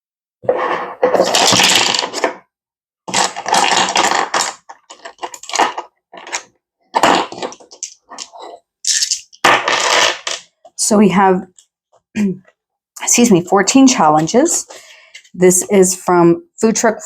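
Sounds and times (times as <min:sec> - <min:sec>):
crinkly packaging rustling: 0:03.1 - 0:10.3.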